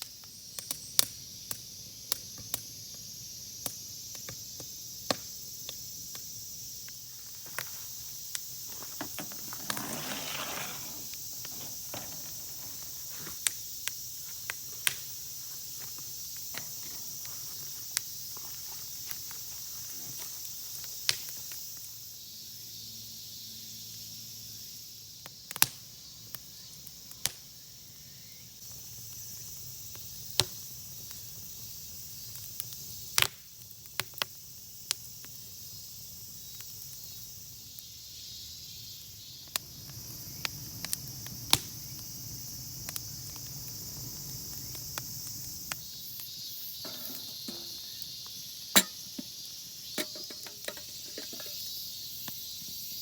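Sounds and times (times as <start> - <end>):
high insect chorus: 0.0 - 53.0
sharp clicks and knocks: 50.0 - 51.6.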